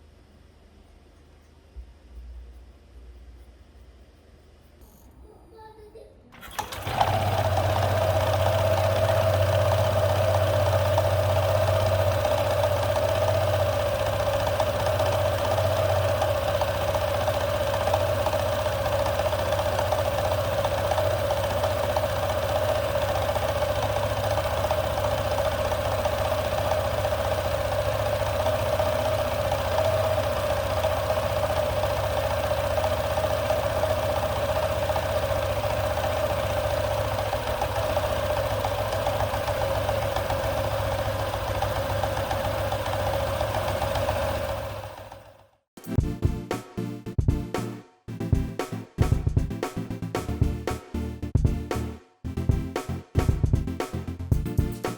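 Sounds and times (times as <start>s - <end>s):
scooter engine starting and idling: 6.3s - 45.7s.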